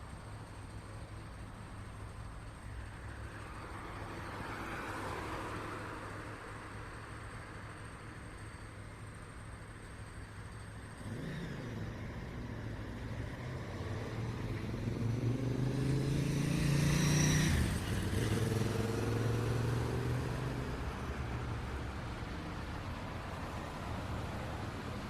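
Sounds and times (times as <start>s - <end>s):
low hum of traffic: 0.0s - 25.0s
car driving past: 11.0s - 21.4s.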